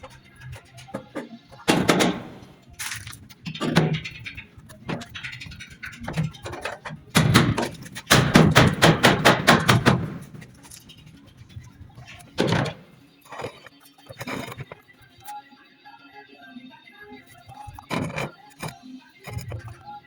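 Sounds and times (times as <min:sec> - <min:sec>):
knocks and thuds: 0:01.0 - 0:02.6, 0:04.9 - 0:10.7, 0:12.4 - 0:13.6.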